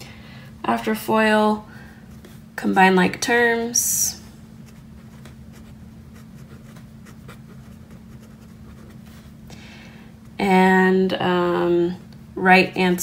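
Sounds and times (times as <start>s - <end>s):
faint steady hum: 0.0s - 13.0s
pen scratching on paper: 4.6s - 9.0s.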